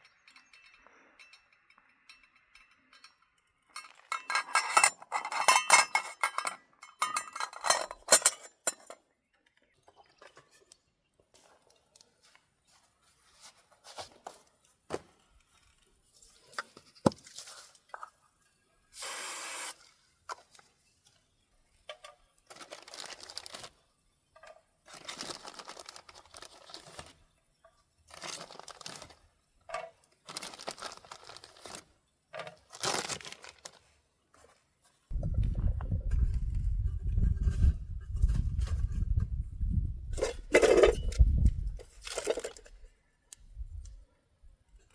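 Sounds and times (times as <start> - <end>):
tearing and crinkling: 22.5 - 23.8, 24.9 - 27.2, 28.1 - 29.3, 30.2 - 31.9, 32.6 - 34.0.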